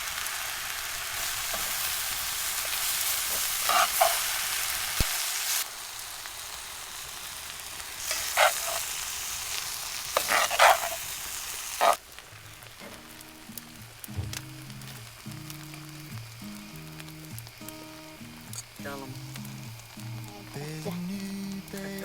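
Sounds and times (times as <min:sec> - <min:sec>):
food sizzling: 0:00.0 - 0:22.0
utensil scraping a pan: 0:01.2 - 0:05.1, 0:08.0 - 0:09.1, 0:10.1 - 0:11.2, 0:11.8 - 0:12.0.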